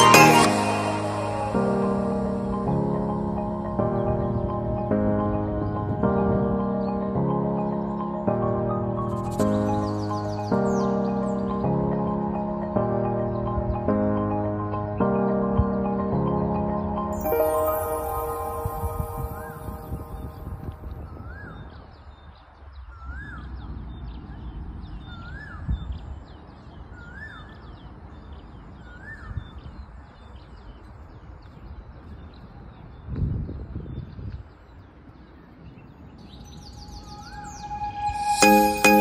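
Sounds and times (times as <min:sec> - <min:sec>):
small birds chirping: 0:05.2 - 0:13.8
bird whistling call: 0:36.6 - 0:39.0.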